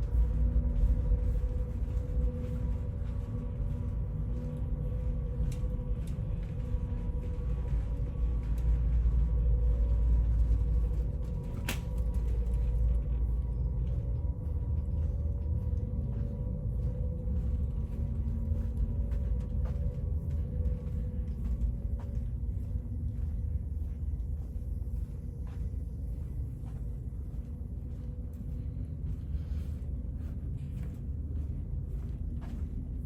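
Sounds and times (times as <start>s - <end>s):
ship low rumble and hum: 0.0s - 33.0s.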